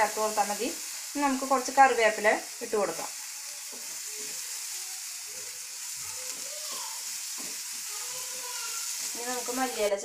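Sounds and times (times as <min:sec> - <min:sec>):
masala sizzling in a hot pan: 0:00.0 - 0:10.0
spoon stirring in a pan: 0:02.9 - 0:09.9.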